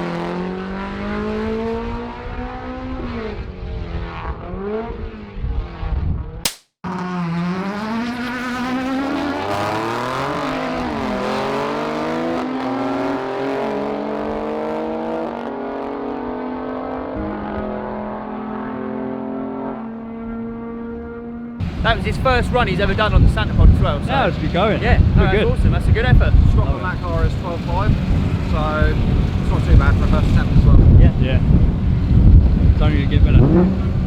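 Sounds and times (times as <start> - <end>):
car accelerating hard: 0.0 - 6.2, 6.9 - 34.0
car engine revving: 6.9 - 24.8, 31.4 - 34.0.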